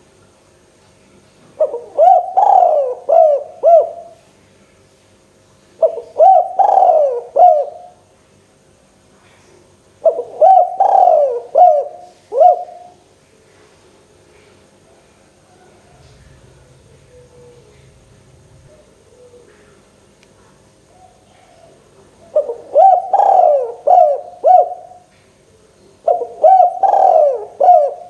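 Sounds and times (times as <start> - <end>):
dove cooing: 1.6 - 4.2, 5.8 - 8.0, 10.0 - 13.0, 15.5 - 19.9, 20.8 - 25.1, 26.0 - 28.0.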